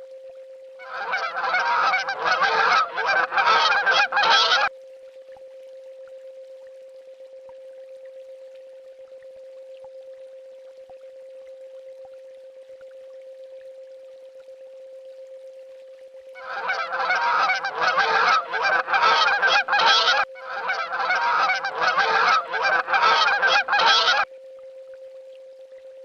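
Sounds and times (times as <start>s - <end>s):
swan honking: 0.8s - 4.7s, 16.4s - 24.3s.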